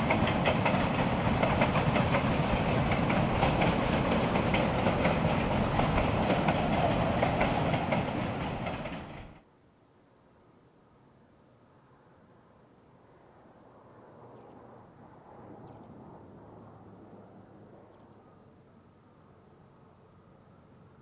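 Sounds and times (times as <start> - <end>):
train wheels clattering over rail joints: 0.0 - 9.4.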